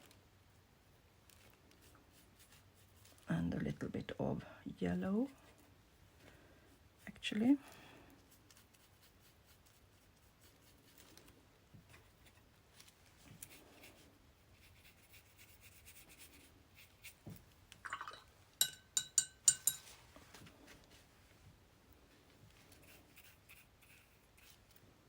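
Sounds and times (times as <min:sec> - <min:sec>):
tools brushing on paper: 0:01.3 - 0:03.3, 0:08.1 - 0:17.4, 0:22.5 - 0:24.8.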